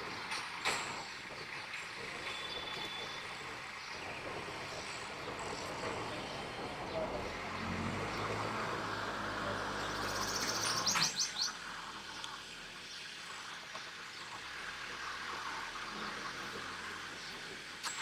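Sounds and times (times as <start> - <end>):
small bird chirping: 9.7 - 14.4.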